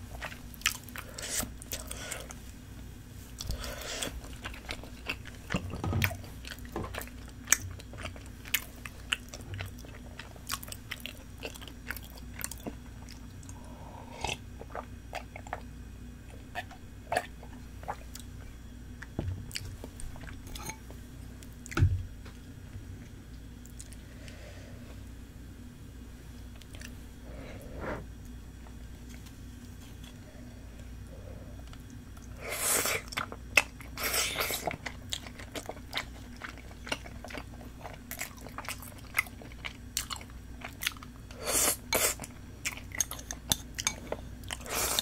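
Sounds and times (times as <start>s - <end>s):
steady low hum: 0.0s - 45.0s
person chewing with wet smacks: 0.2s - 2.4s, 3.4s - 13.6s, 14.3s - 18.4s, 23.6s - 24.0s, 26.6s - 27.0s, 31.6s - 45.0s.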